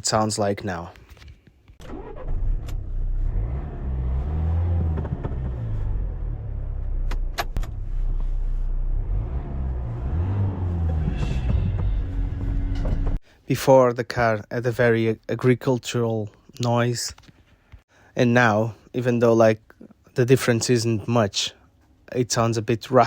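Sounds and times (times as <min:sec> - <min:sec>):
diesel engine running: 0:01.9 - 0:13.2.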